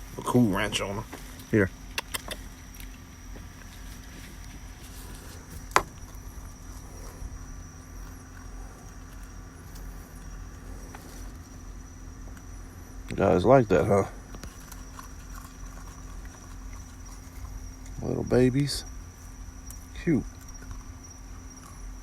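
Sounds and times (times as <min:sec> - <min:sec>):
faint hum: 0:00.0 - 0:22.0
low outdoor rumble: 0:00.0 - 0:22.0.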